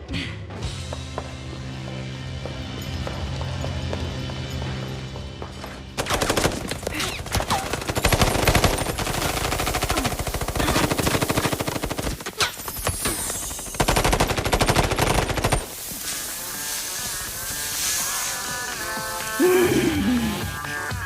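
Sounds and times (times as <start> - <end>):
automatic gunfire bursts: 6.0 - 15.8.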